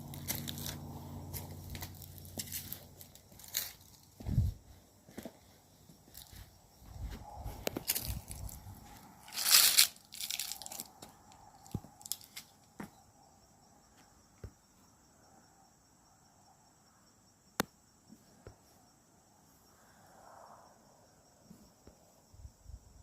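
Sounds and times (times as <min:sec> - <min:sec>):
footsteps crunching on woodland floor: 0:00.0 - 0:13.0
insects droning: 0:00.0 - 0:23.0
twigs snapping: 0:09.3 - 0:10.9, 0:11.7 - 0:12.5.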